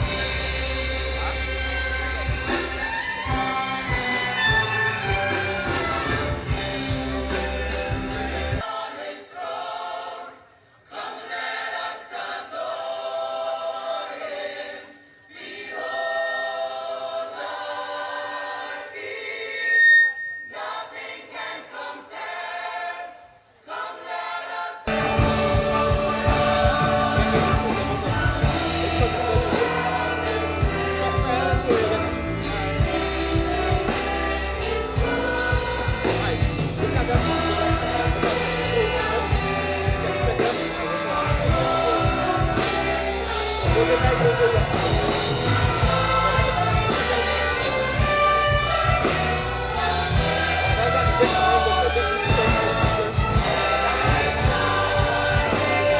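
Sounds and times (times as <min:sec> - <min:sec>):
band with bass and drums: 0:00.0 - 0:08.6, 0:24.9 - 0:55.9
choir singing gospel music: 0:00.0 - 0:55.9.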